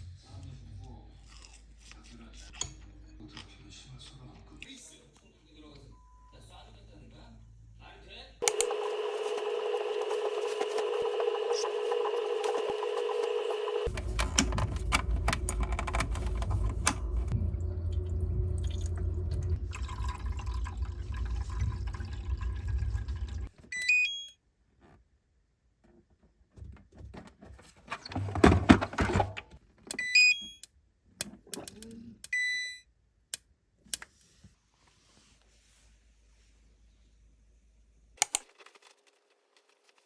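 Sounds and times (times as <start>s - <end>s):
clicks and handling clatter: 8.4s - 17.4s, 25.9s - 30.6s
electronic appliance beeps: 8.4s - 20.1s, 23.7s - 24.4s, 29.9s - 30.7s, 32.3s - 32.8s
running liquid rushing: 17.3s - 23.5s.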